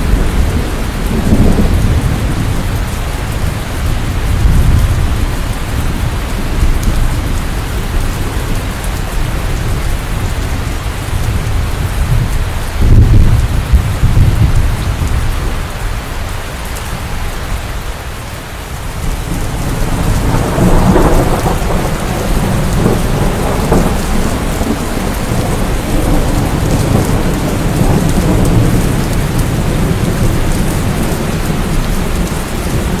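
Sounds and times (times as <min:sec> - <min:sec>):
rolling thunder: 0:00.0 - 0:16.0, 0:19.0 - 0:33.0
heavy rain: 0:00.0 - 0:33.0.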